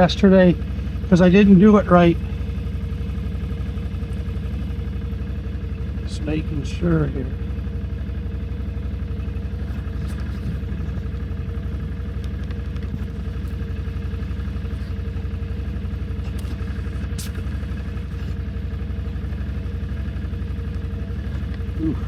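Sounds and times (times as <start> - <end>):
atv engine idling: 0.0 - 22.0.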